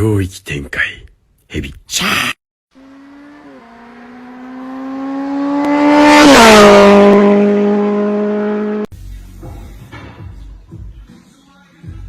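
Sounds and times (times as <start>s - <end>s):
vehicle passing at speed: 2.8s - 8.9s.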